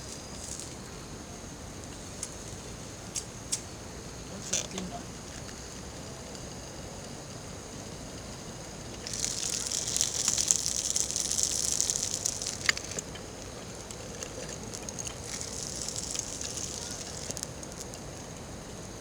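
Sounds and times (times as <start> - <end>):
food sizzling in a pan: 8.9 - 18.0.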